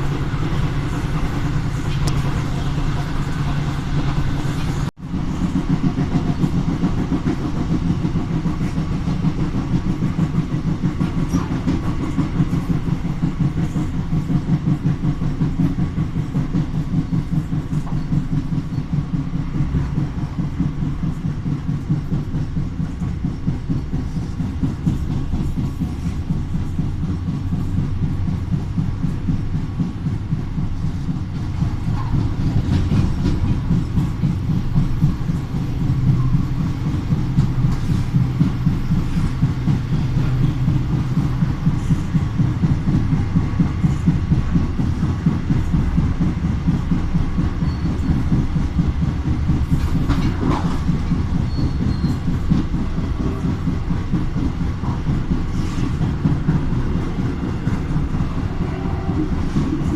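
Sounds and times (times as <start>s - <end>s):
train rumble: 0.0s - 59.9s
wheel click or squeal: 47.6s - 48.4s, 51.3s - 52.5s.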